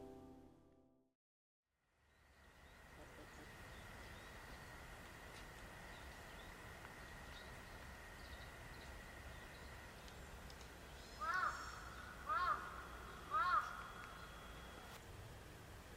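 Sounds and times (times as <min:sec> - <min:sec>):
faint bird chirps: 0:05.9 - 0:15.0
crow cawing: 0:11.2 - 0:14.4.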